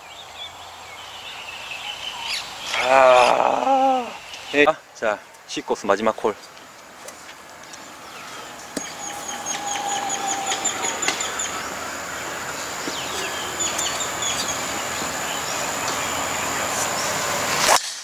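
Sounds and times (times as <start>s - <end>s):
birds chirping: 0.0s - 17.6s
high-pitched whine: 7.7s - 18.0s.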